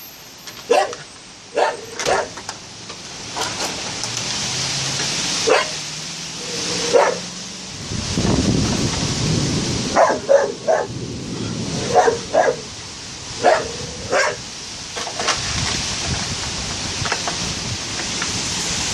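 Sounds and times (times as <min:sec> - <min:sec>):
rain: 0:00.0 - 0:18.9
wind: 0:00.0 - 0:18.9
dog barking: 0:00.7 - 0:02.4, 0:05.4 - 0:05.8, 0:06.9 - 0:07.2, 0:10.0 - 0:10.9, 0:11.8 - 0:12.7, 0:13.4 - 0:14.4.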